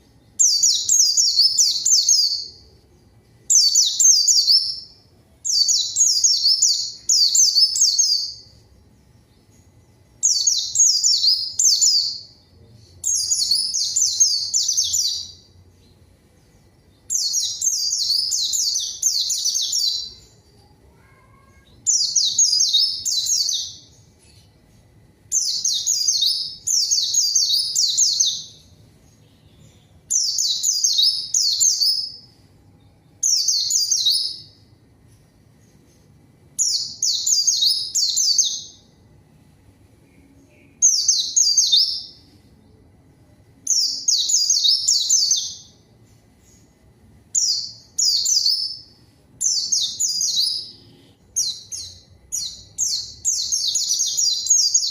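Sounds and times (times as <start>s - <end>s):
bird chirping twitters: 0.0s - 32.4s, 43.6s - 45.8s, 47.4s - 54.9s.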